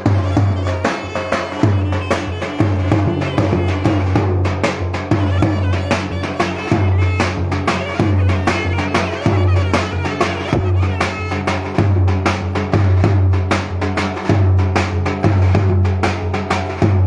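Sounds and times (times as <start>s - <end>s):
reedy clarinet melody: 0.0s - 4.2s, 5.1s - 11.8s.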